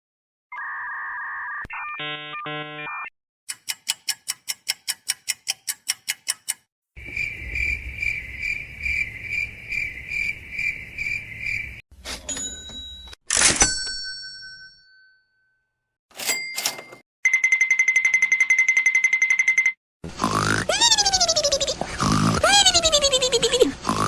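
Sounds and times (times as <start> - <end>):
crickets chirping: 7.0 - 11.8.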